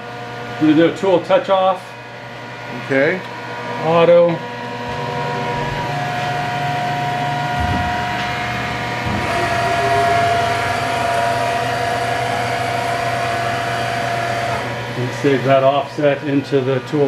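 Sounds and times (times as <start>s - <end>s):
milling machine electric whine: 0.0s - 17.0s.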